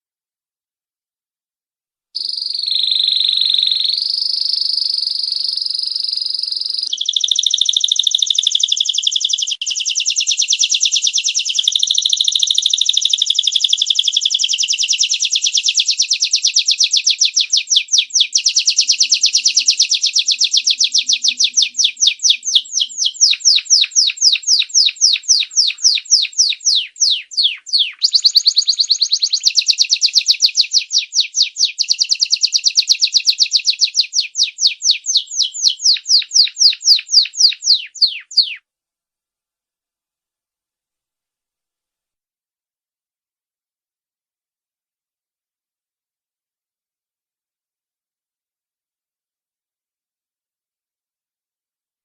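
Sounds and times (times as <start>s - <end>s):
canary singing: 2.2s - 38.6s.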